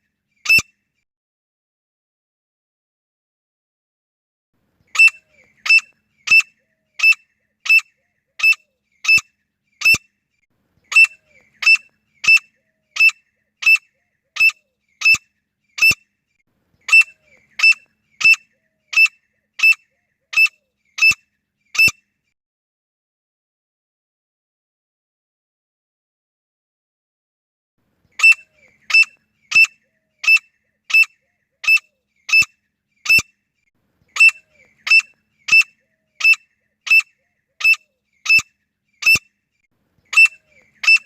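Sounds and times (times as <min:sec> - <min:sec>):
francolin calling: 0:04.9 - 0:10.1, 0:10.8 - 0:16.0, 0:16.8 - 0:22.0, 0:28.1 - 0:33.3, 0:34.1 - 0:39.4, 0:40.1 - 0:41.0.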